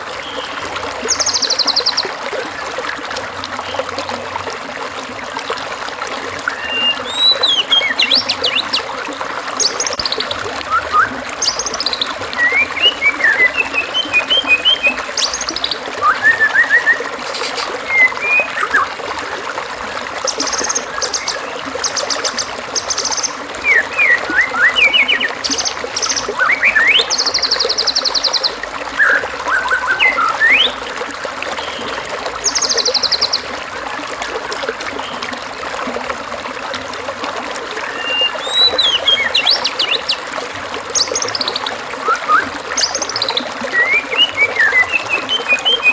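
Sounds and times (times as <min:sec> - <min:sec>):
trickle of flowing water: 0:00.0 - 0:45.9
songbird calls: 0:00.2 - 0:02.1, 0:06.5 - 0:08.9, 0:09.6 - 0:18.9, 0:20.2 - 0:30.8, 0:37.9 - 0:40.2, 0:40.9 - 0:45.9.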